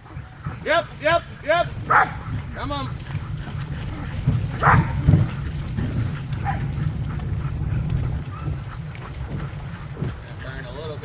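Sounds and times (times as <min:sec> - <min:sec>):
sled rig rumbling on trail: 0:00.0 - 0:11.0
dog barking: 0:01.9 - 0:02.3, 0:04.6 - 0:05.3, 0:06.4 - 0:06.9.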